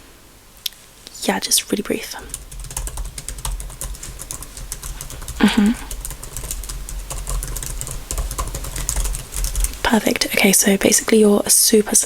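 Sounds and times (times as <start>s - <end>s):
keyboard typing: 2.2s - 9.8s.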